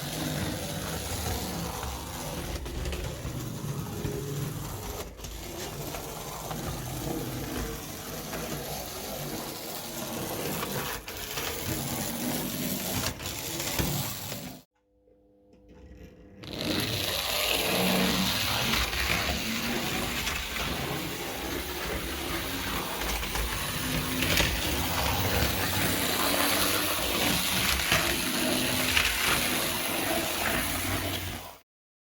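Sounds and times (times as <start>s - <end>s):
electric motor and gears clicking: 16.4s - 31.5s.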